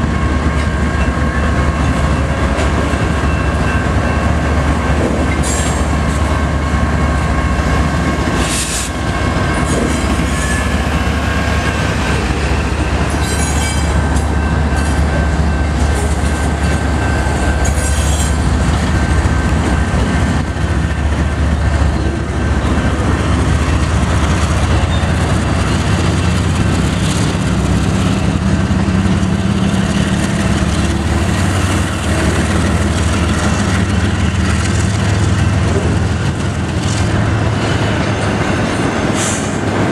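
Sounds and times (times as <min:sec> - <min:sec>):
diesel locomotive engine rumble: 0:00.0 - 0:39.9
wheels clattering over rail joints: 0:09.4 - 0:20.9
high wheel squeal: 0:09.6 - 0:11.5, 0:13.0 - 0:18.6, 0:24.8 - 0:25.2.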